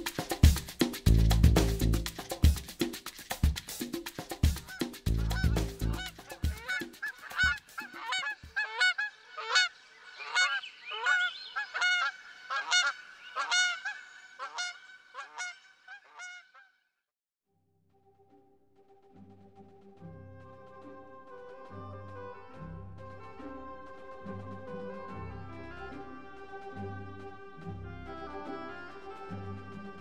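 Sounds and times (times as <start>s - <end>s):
background music: 0.0s - 8.4s, 18.1s - 30.0s
geese honking: 4.6s - 16.7s.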